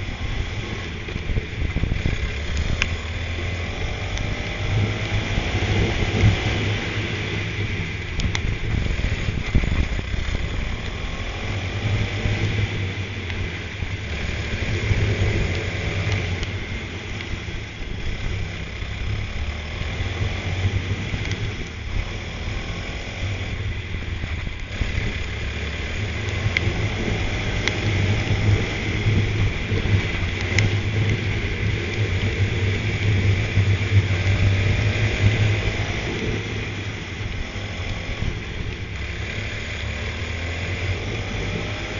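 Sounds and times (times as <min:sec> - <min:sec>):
go-kart engine accelerating: 0:00.0 - 0:41.9
steady noise: 0:00.0 - 0:41.9.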